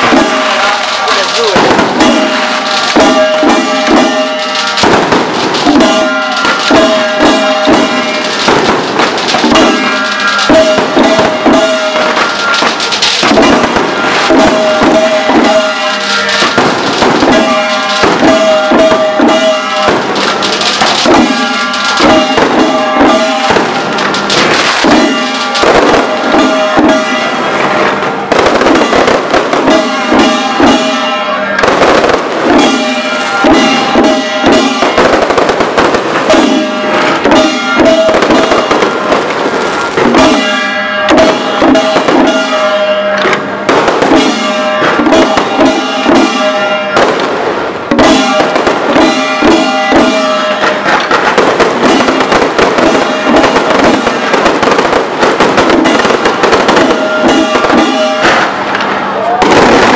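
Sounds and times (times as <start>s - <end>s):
fireworks launching and bursting: 0.0s - 59.9s.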